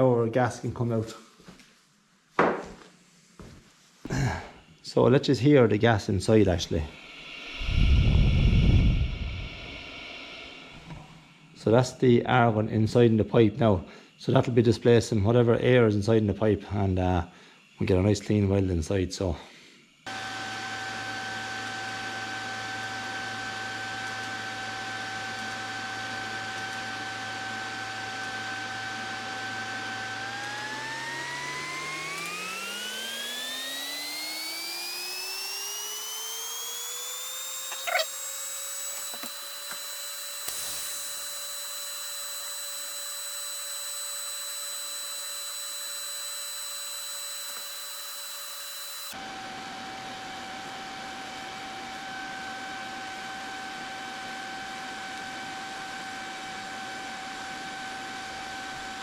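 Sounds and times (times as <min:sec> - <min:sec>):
welder arc whine: 0:04.1 - 0:12.5, 0:24.8 - 0:49.5.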